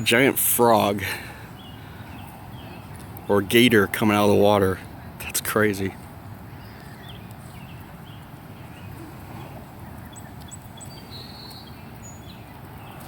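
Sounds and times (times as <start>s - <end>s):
birds chirping: 0.0s - 13.0s
bird trill: 10.0s - 13.0s.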